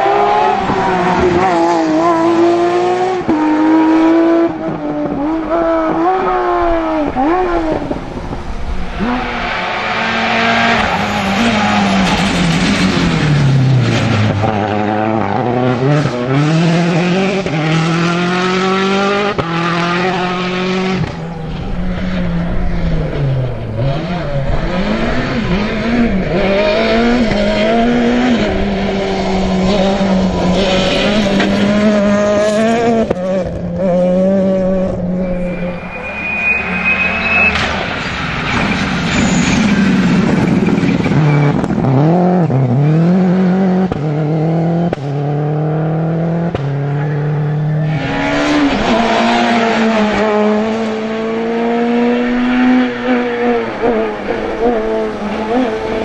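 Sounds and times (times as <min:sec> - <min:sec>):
rally car engine revving: 0:00.0 - 0:56.0
thin rising whine: 0:34.6 - 0:40.9.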